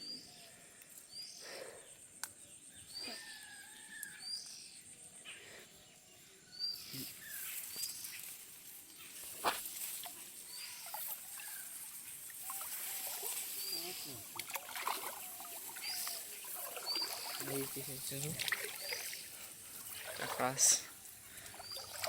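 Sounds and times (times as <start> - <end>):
bird chirps: 1.1 - 8.3, 15.5 - 20.8.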